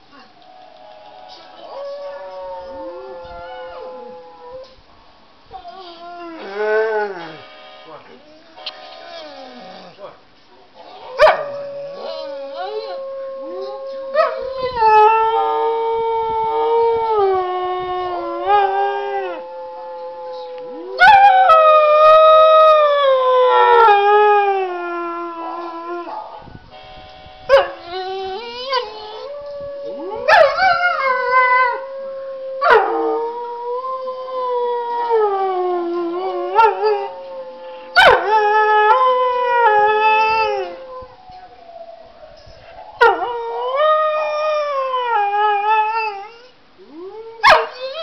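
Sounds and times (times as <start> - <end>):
dog howling: 1.7 - 4.8, 27.5 - 48.0.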